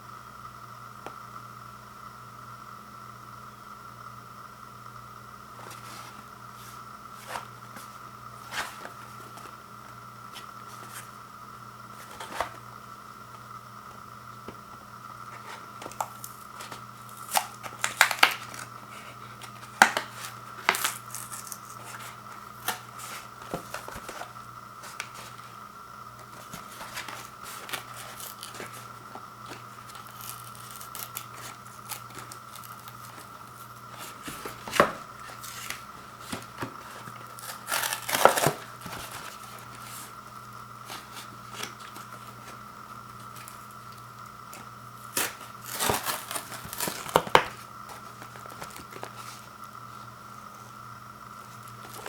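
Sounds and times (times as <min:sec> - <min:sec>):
faint steady hum: 0:00.0 - 0:52.0
cardboard and plastic tearing: 0:07.2 - 0:09.6, 0:11.9 - 0:12.6, 0:15.3 - 0:40.2, 0:40.8 - 0:49.5, 0:51.4 - 0:52.0.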